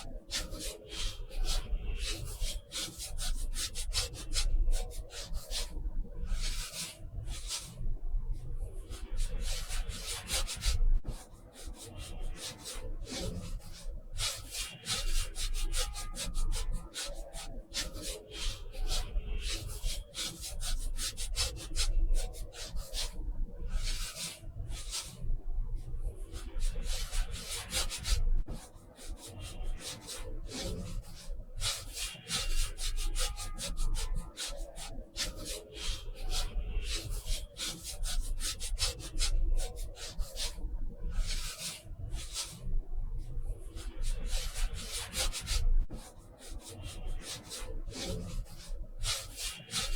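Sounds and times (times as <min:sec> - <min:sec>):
paintbrush scratching on paper: 0:26.2 - 0:49.9.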